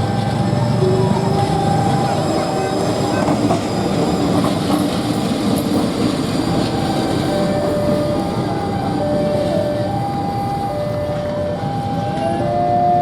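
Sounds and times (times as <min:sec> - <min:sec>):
train wheels clattering on rails: 0:00.1 - 0:12.7.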